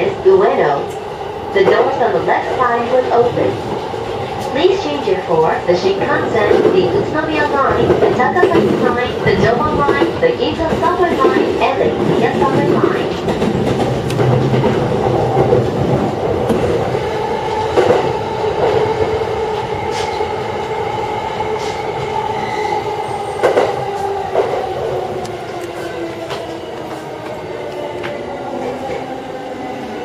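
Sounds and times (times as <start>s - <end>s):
train rolling rumble with hum: 0.0s - 30.0s.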